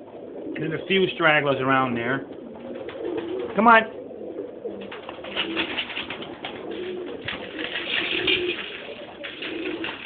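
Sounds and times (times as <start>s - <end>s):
pigeons cooing: 0.0s - 10.0s
birds clicking and rustling: 2.3s - 3.6s, 4.6s - 10.0s.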